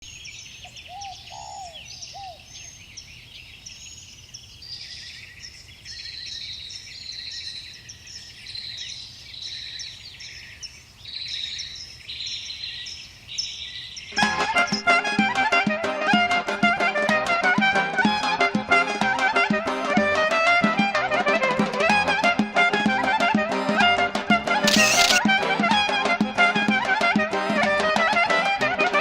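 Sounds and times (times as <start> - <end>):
low rising and falling bird calls: 0.0 - 13.6
birds chirping: 0.0 - 14.8, 24.7 - 25.2.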